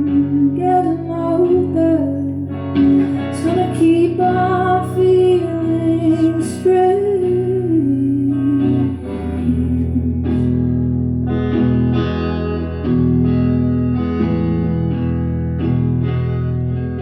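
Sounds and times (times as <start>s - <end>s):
guitar strumming chords: 0.0s - 17.0s.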